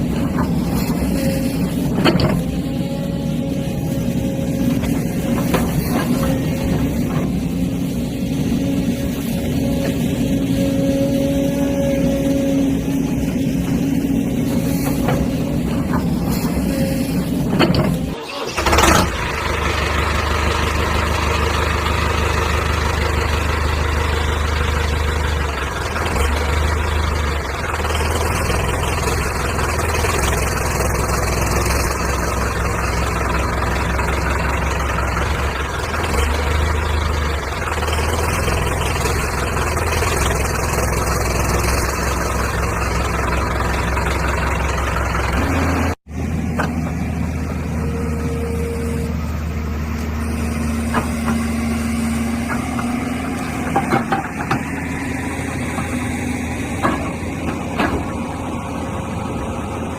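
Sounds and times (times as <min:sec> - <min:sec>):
diesel engine humming: 0:00.0 - 0:59.9.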